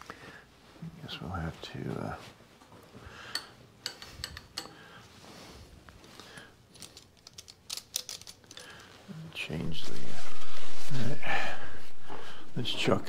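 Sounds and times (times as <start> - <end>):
tools and metal parts clicking: 3.3 - 4.8, 6.1 - 8.9.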